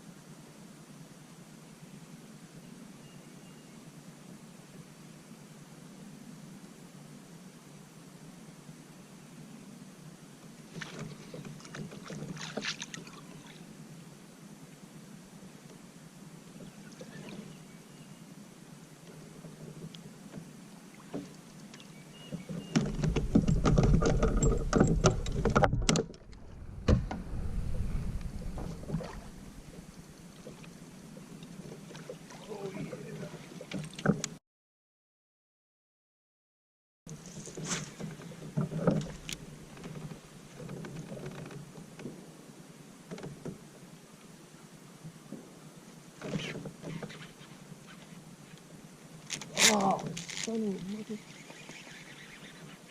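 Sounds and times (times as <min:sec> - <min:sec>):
water splashing against kayak: 0:10.7 - 0:13.6, 0:19.2 - 0:34.4
gear knocking against plastic kayak: 0:22.4 - 0:26.3
low rumble: 0:24.4 - 0:30.4.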